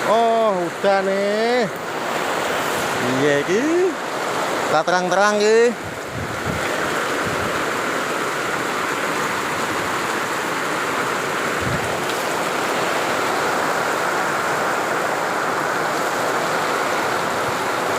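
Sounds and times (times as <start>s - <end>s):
steady rain falling: 0.0s - 17.9s.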